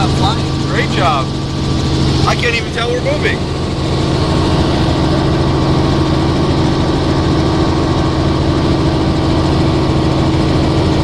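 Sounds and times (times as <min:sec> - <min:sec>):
helicopter engine and rotor drone: 0:00.0 - 0:11.0.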